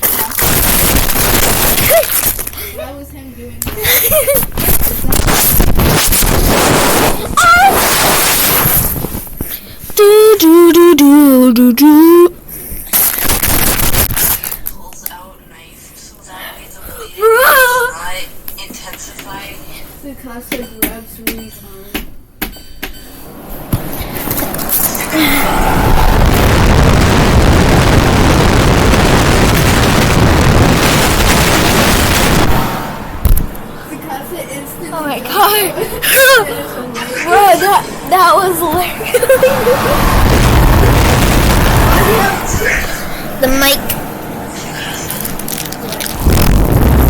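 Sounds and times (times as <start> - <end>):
loud distorted roar: 23.8 - 33.3, 39.1 - 43.2, 46.0 - 47.0
loud noisy vocal sounds: 25.0 - 29.8, 39.3 - 43.2.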